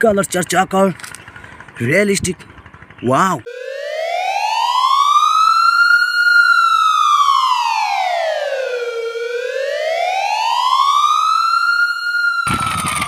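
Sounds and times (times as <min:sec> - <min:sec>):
wailing siren: 0:03.4 - 0:13.0.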